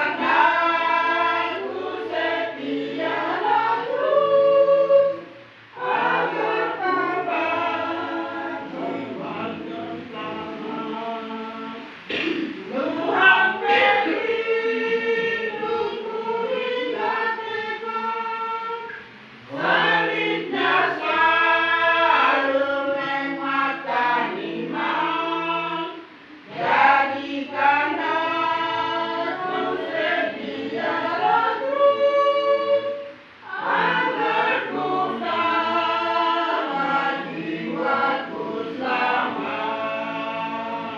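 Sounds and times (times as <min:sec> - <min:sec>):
choir singing: 0:00.0 - 0:40.9.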